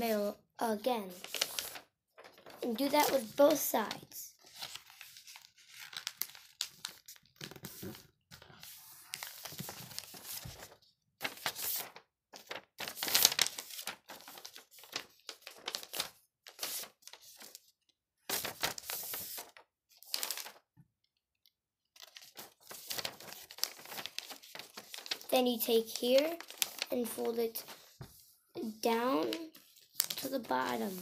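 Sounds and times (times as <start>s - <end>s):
paper rustling and crinkling: 1.1s - 17.7s, 18.3s - 20.6s, 22.0s - 31.0s.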